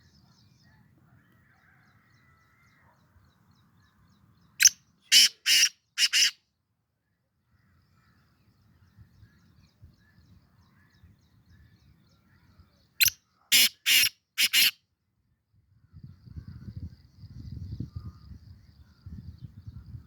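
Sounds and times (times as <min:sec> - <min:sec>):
loud harsh bird call: 0:04.6 - 0:06.4, 0:13.0 - 0:14.8.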